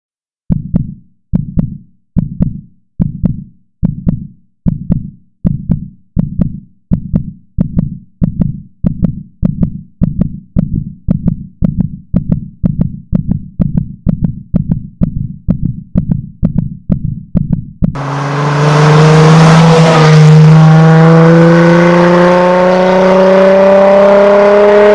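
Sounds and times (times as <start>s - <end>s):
heartbeat thumps: 0.5s - 18.0s.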